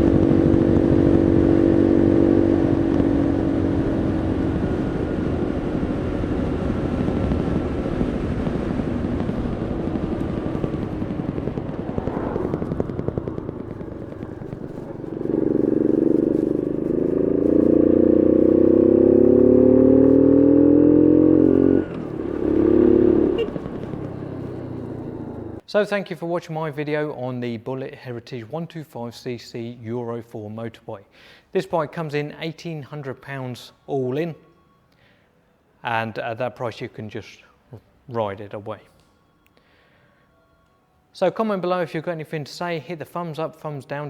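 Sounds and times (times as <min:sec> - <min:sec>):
motorbike engine revving: 0:00.0 - 0:25.6.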